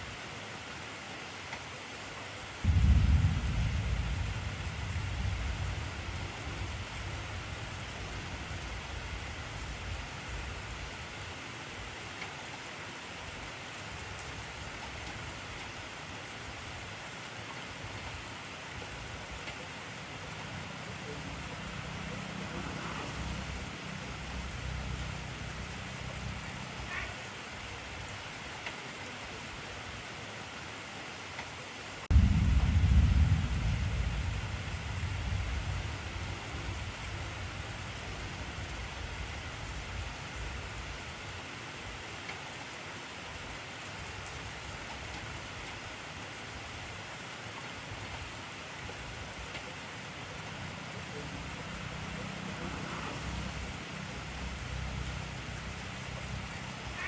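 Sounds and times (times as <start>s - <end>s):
heavy rain falling: 0.0s - 57.0s
thunder rumble: 2.6s - 10.9s, 18.8s - 27.0s, 32.1s - 40.8s, 50.6s - 57.0s.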